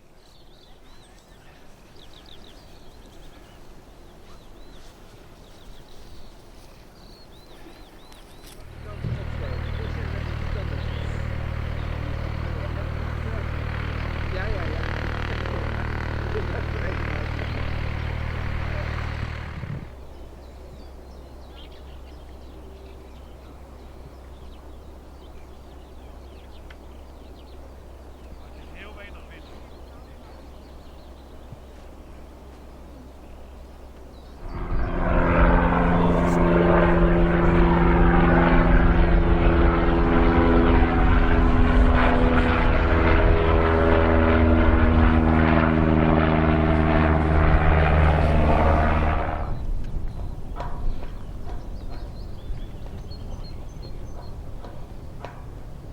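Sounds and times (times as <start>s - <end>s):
songbird chirping: 0.0s - 13.5s, 19.9s - 34.8s, 49.5s - 55.5s
aircraft drone: 8.0s - 20.2s, 32.2s - 55.9s
low hum: 8.1s - 21.4s, 32.2s - 55.9s
low rumble: 8.5s - 20.0s, 34.4s - 55.9s.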